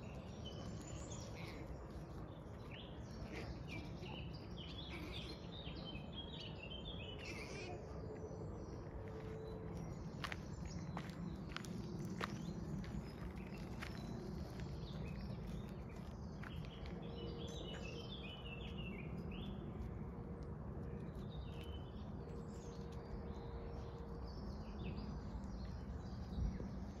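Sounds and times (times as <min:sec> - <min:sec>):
low outdoor rumble: 0:00.0 - 0:27.0
small birds chirping: 0:00.0 - 0:27.0.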